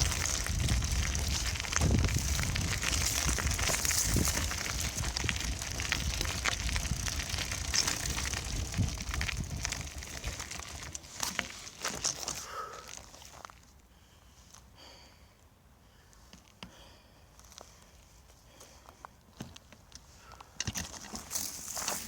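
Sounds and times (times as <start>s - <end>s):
wind rumbling on microphone: 0.0s - 11.0s
bicycle rattling over rough ground: 0.0s - 13.7s, 19.4s - 22.0s.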